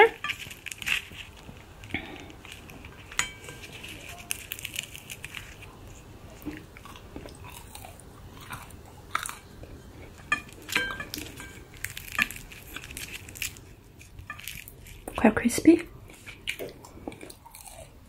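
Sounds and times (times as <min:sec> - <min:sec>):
person chewing crisp food: 0:00.1 - 0:15.2, 0:15.8 - 0:18.0.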